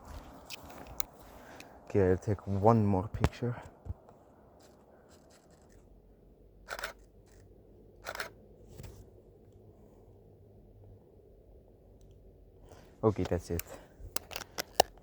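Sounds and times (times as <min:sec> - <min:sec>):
camera shutter and mirror clacking: 0:06.7 - 0:08.4.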